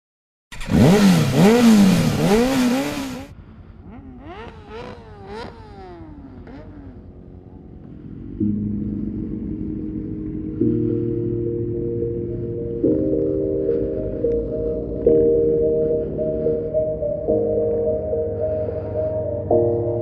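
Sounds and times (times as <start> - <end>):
motorcycle engine revving: 0.5 - 9.4
steady music: 8.1 - 20.0.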